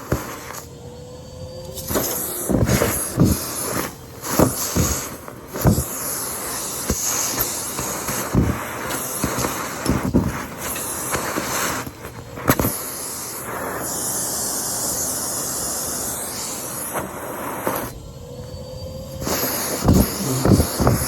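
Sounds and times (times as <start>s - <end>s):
vacuum cleaner sucking debris: 0.0s - 21.0s.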